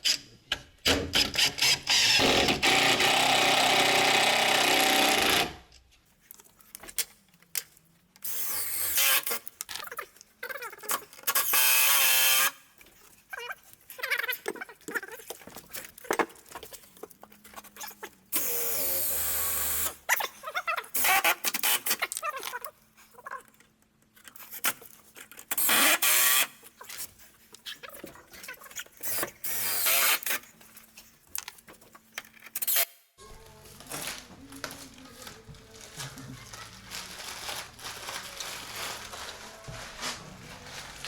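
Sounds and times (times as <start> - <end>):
power drill running: 1.9 - 5.6, 25.6 - 26.5, 29.1 - 30.2.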